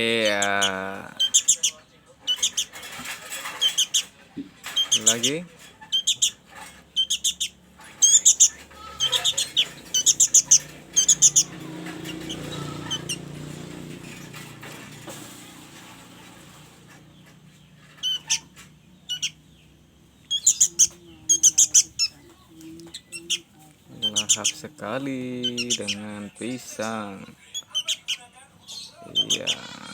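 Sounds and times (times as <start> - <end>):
young bird begging chirps: 0.2 - 2.8, 5.9 - 13.2, 18.0 - 24.6, 25.4 - 26.0, 27.5 - 29.7.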